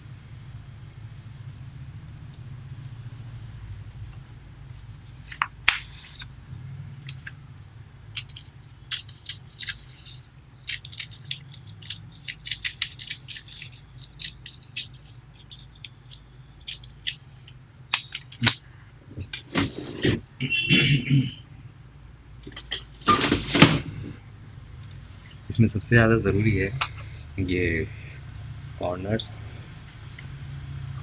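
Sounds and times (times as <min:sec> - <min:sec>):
steady low hum: 0:00.0 - 0:31.0
paper crackling and rustling: 0:08.2 - 0:17.3.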